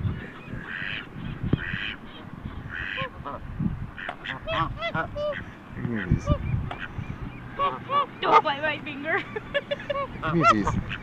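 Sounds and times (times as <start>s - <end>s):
ducks and geese calling: 0.0s - 11.0s.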